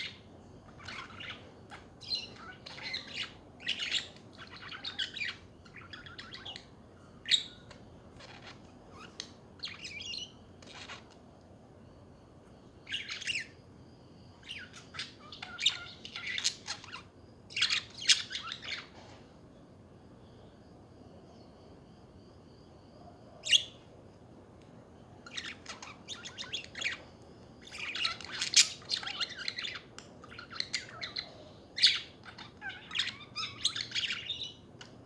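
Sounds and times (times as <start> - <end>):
budgerigars chirping and warbling: 0.0 - 11.2, 12.9 - 13.5, 14.4 - 18.9, 25.2 - 27.0, 27.6 - 34.9.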